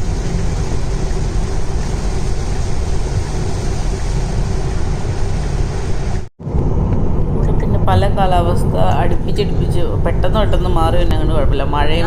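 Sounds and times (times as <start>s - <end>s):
heavy rain on car roof: 0.0s - 6.3s
tyres on wet road: 0.0s - 6.3s.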